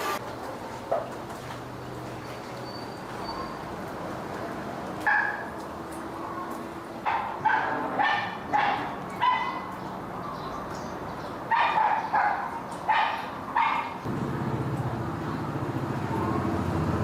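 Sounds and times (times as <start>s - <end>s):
dog barking: 5.0s - 5.5s, 7.0s - 9.8s, 11.5s - 14.0s.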